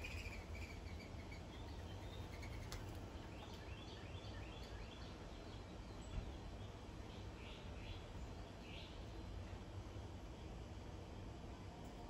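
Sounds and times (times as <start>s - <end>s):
faint bird chirps: 0.0s - 6.4s
low outdoor rumble: 0.0s - 12.0s.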